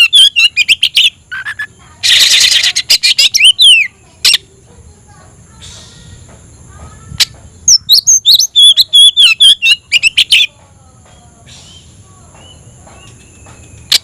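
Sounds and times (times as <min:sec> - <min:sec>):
bird singing whistled notes: 0:00.0 - 0:04.4, 0:07.2 - 0:14.0.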